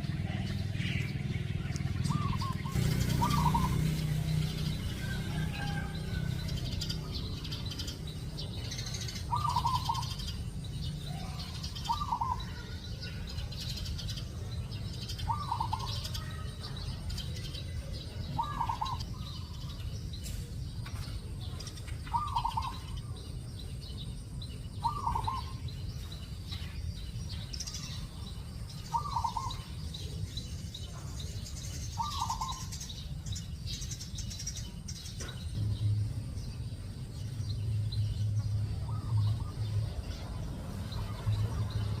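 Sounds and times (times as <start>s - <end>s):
high chirping of small birds: 0.0s - 42.0s
steady low rumble: 34.6s - 42.0s.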